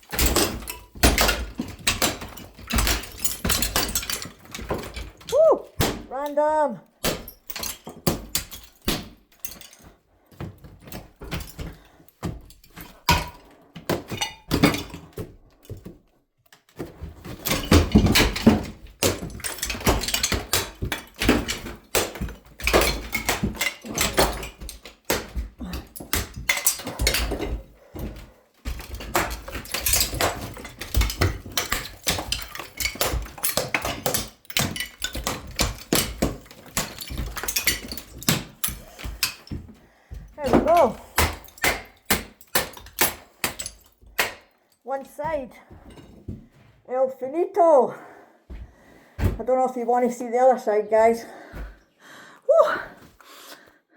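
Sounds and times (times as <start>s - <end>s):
wall material knocked and crashing: 0.1s - 6.1s, 16.8s - 44.4s.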